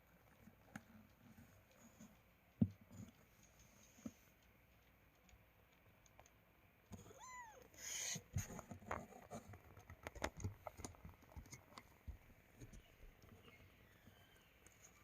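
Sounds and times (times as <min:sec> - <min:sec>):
kitten meowing: 0:07.0 - 0:08.2.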